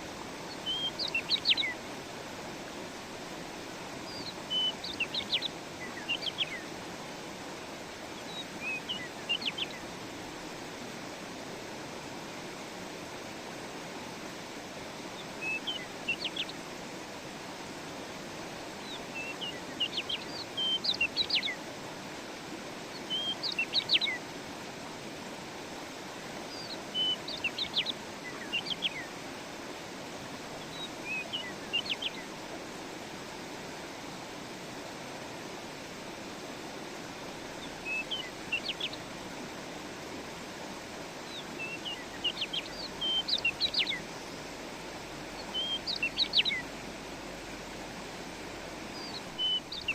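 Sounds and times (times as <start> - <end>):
songbird singing: 0.0 - 1.9, 4.0 - 6.8, 8.0 - 9.9, 15.1 - 16.7, 18.8 - 21.7, 22.8 - 24.3, 26.4 - 29.3, 30.5 - 32.4, 37.2 - 39.4, 41.2 - 47.6, 48.6 - 49.9.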